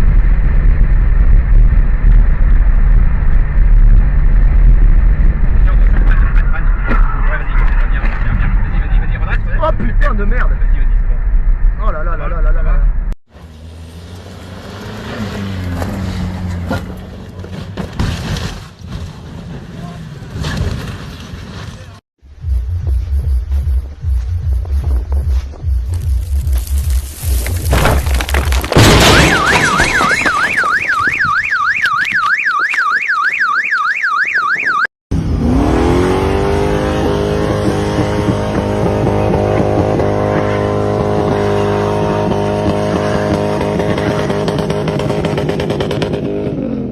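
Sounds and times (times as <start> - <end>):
road noise: 0.0 - 32.8, 35.1 - 46.9
electronic alarm warbling: 29.1 - 34.9
vehicle engine revving: 35.1 - 46.9.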